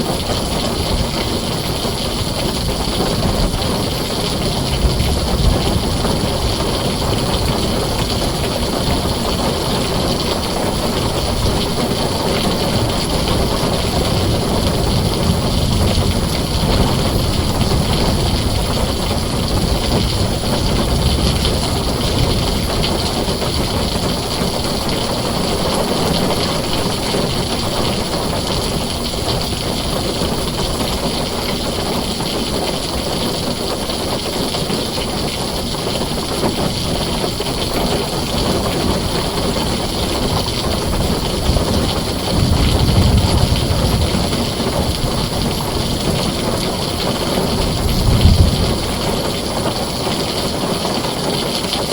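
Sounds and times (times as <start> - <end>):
heavy rain on a tin roof: 0.0 - 51.9.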